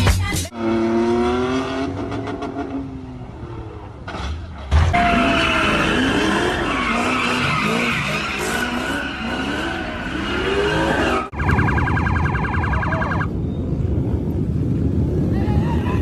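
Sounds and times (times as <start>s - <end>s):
road vehicle engine: 0.4s - 16.0s
pulsing electronic alarm tone: 11.3s - 13.3s.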